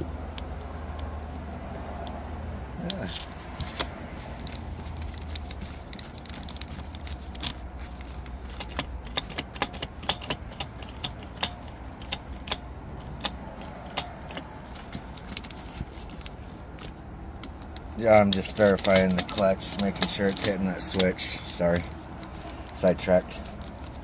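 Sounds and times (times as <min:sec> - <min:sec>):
sharp metallic clicks: 0:02.9 - 0:24.0.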